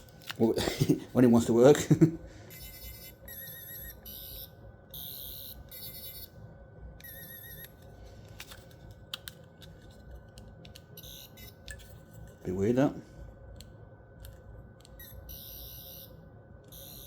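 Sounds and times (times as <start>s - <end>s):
toy warbling electronic buzz: 2.5s - 6.3s, 7.0s - 7.7s, 11.0s - 11.6s, 15.0s - 17.0s.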